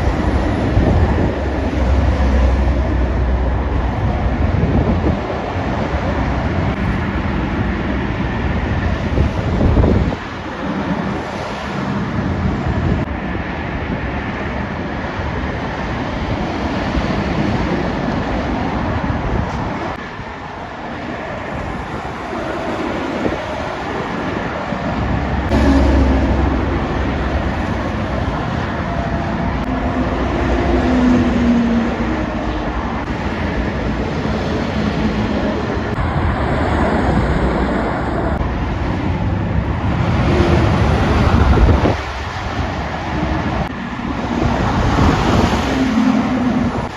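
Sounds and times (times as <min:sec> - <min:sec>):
traffic driving past: 0:00.0 - 0:46.9
truck engine passing: 0:21.9 - 0:42.8.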